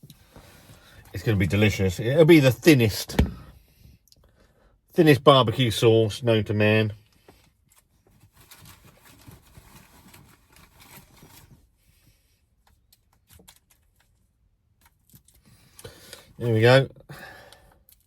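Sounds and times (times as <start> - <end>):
faint rustling and handling: 6.9 - 16.9.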